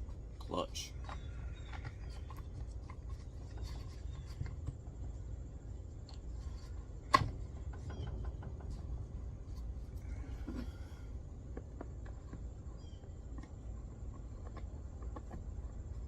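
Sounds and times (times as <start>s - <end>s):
clicks and scrapes of handled parts: 0.4s - 4.8s.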